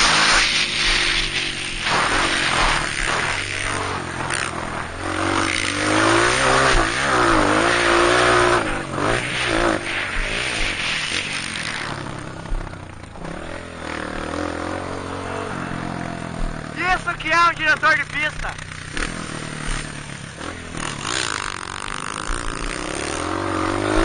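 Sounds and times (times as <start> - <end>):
rushing noise: 0.0 - 12.2
dirt bike engine revving: 0.0 - 24.0.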